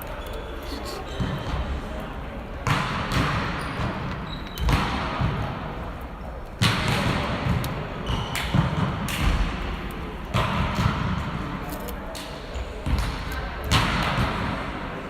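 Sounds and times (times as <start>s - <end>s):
volleyball hitting gym floor: 2.6s - 5.8s, 6.6s - 11.5s, 12.2s - 14.7s.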